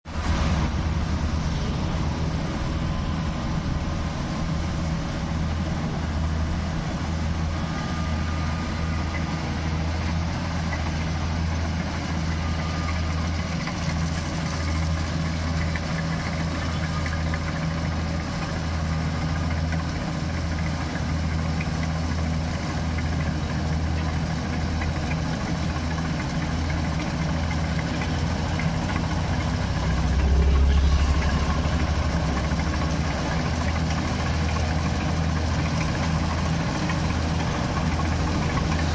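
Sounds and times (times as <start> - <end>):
combine harvester engine humming: 0.0 - 38.9.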